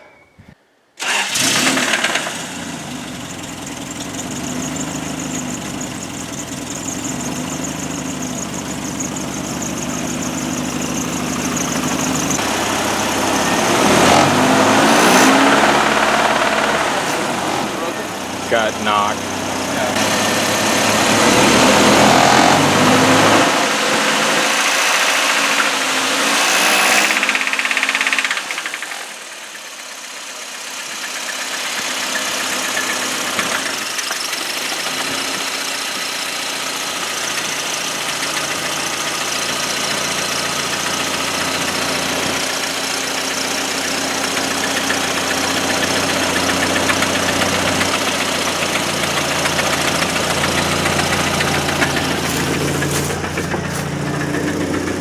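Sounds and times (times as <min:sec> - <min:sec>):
engine running with knock: 0:01.0 - 0:55.0.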